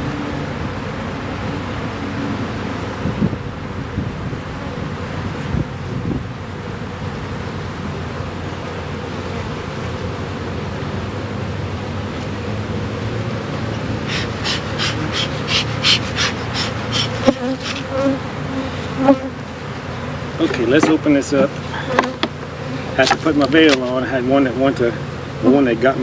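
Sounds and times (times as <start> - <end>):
honeybees buzzing: 4.5 - 25.5
short high scratchy strokes: 13.6 - 19.3.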